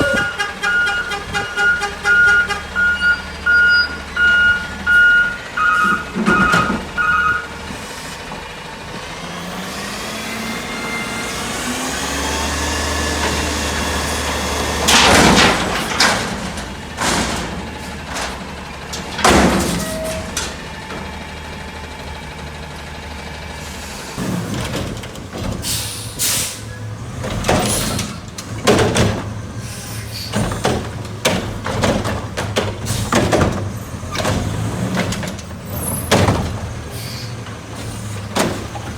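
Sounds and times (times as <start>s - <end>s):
truck reversing beeps: 0.0s - 8.2s, 19.6s - 22.4s
truck engine revving: 0.0s - 38.9s
metal clanks and bangs: 13.2s - 21.4s, 24.2s - 38.9s.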